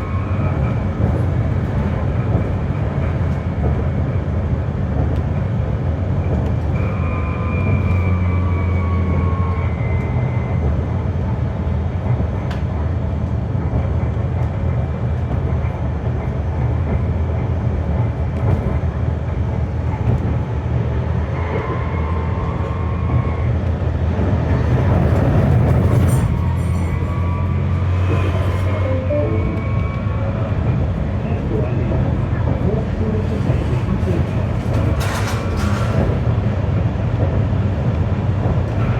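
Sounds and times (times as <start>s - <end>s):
tram wheels rumbling: 0.0s - 38.9s.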